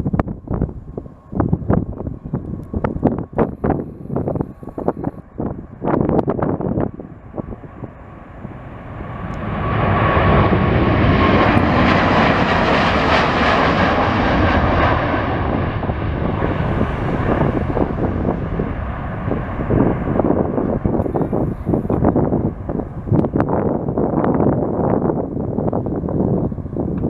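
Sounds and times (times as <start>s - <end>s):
jet airliner passing: 0.0s - 27.0s
whining engine tone: 0.6s - 15.0s.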